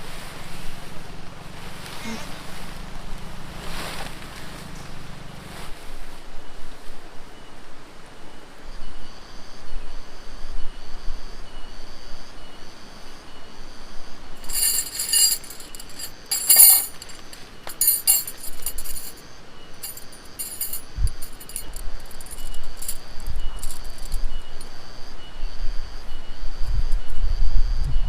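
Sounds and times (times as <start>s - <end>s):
small items clinking and jangling: 14.4s - 24.6s.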